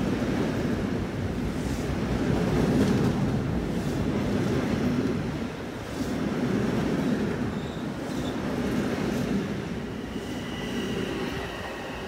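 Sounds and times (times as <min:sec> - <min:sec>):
rumble of wheels on rail: 0:00.0 - 0:12.0
steady high whine: 0:09.5 - 0:12.0.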